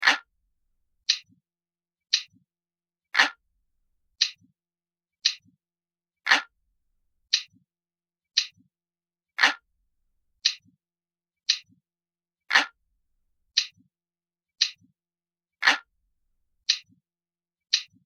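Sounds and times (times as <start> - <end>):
clock ticking: 1.0 - 1.4, 2.2 - 2.4, 4.2 - 4.5, 5.3 - 5.6, 8.4 - 8.7, 11.5 - 11.8, 14.6 - 14.9, 17.8 - 18.0.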